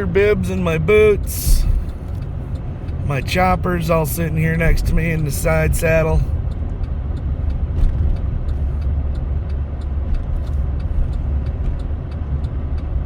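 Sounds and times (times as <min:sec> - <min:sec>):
engine and tyre rumble: 0:00.0 - 0:13.0
faint light ticking: 0:00.1 - 0:03.2, 0:05.9 - 0:13.0.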